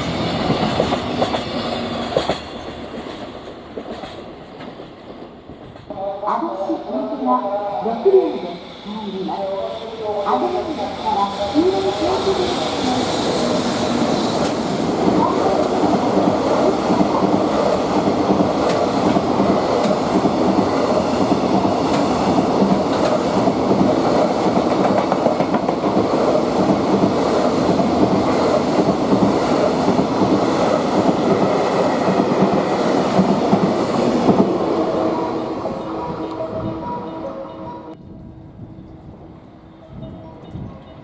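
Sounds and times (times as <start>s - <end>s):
train wheels clacking over rail joints: 0.2s - 6.0s, 12.4s - 34.6s.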